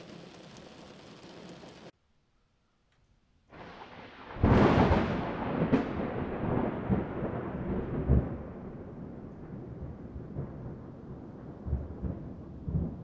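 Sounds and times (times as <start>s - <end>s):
heavy rain: 0.0s - 1.9s
thunderclap rolling: 0.0s - 1.9s, 3.6s - 13.0s.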